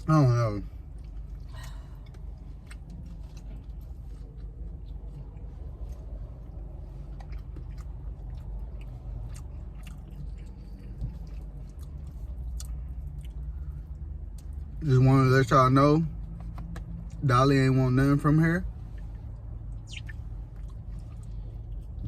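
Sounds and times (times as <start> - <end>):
person chewing food: 0.8 - 14.8, 19.0 - 22.0
wet mouth clicks and smacking: 19.7 - 22.0.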